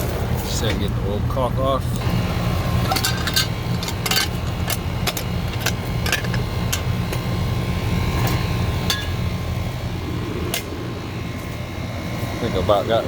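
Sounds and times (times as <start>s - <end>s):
low machine hum: 0.0s - 13.0s
hand tools clinking on metal: 2.8s - 7.3s.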